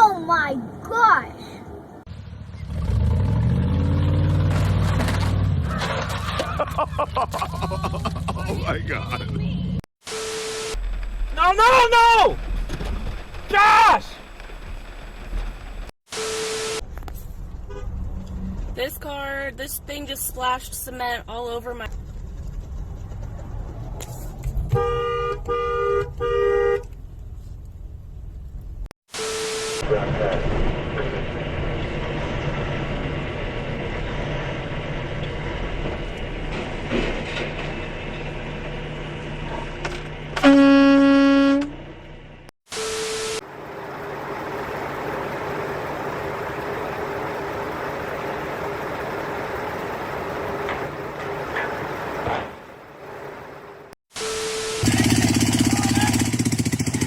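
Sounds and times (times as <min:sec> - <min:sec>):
vehicle horn honking: 0:17.6 - 0:18.0, 0:24.7 - 0:26.9, 0:40.4 - 0:41.8.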